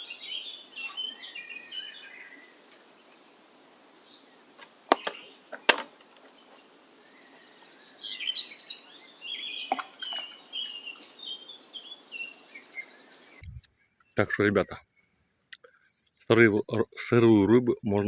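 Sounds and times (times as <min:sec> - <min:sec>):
bird chirping: 0:00.0 - 0:16.4
faint outdoor hiss: 0:00.0 - 0:18.0
sharp clicks or knocks: 0:04.9 - 0:06.1.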